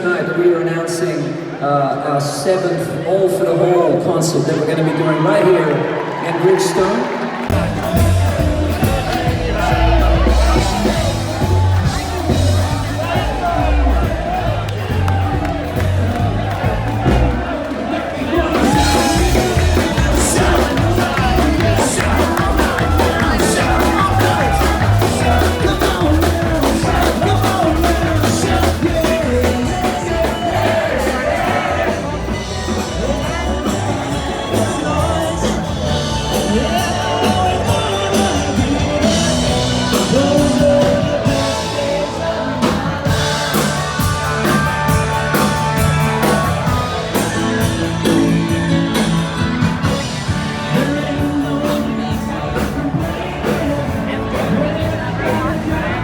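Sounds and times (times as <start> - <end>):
rock band playing: 6.0 - 56.0
steady drum beat: 7.5 - 56.0
person singing: 18.2 - 56.0.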